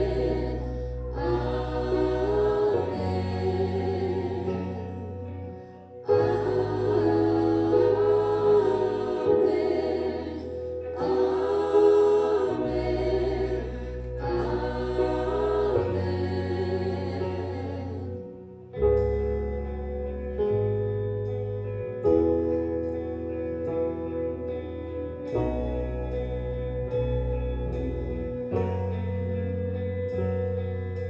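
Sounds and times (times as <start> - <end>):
group singing gospel: 0.0 - 18.4
sustained bass chords: 0.0 - 31.0.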